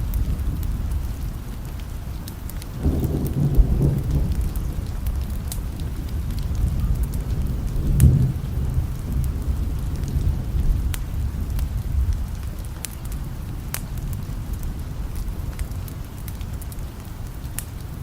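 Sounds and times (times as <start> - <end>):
low rumble of thunder: 0.0 - 18.0
steady rain: 0.0 - 18.0.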